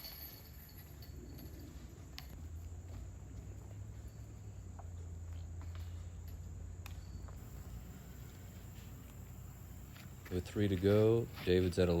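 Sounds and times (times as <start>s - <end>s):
low steady rumble: 0.3s - 12.0s
insects chirring: 7.4s - 12.0s.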